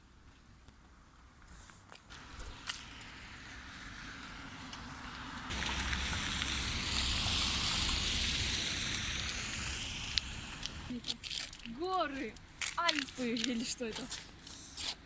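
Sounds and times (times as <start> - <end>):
fast-flowing water rushing: 2.1 - 10.9.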